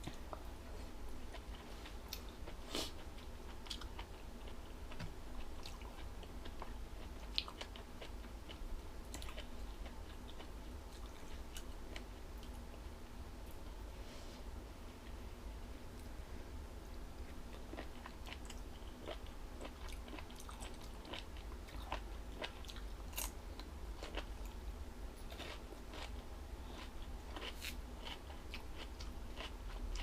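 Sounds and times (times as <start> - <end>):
steady low hum: 0.0 - 30.0
person chewing crunchy food: 1.3 - 12.6, 17.5 - 24.6, 25.2 - 30.0.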